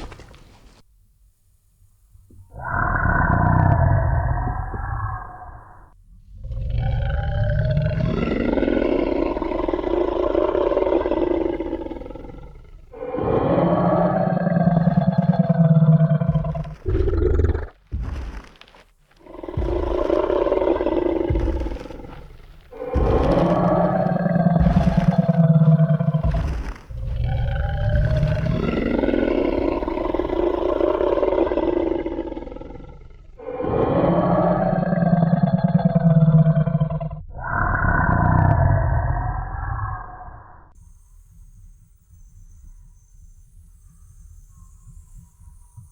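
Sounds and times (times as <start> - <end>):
dinosaur roaring: 2.5 - 40.6
heavy stomping thumps: 14.5 - 31.0.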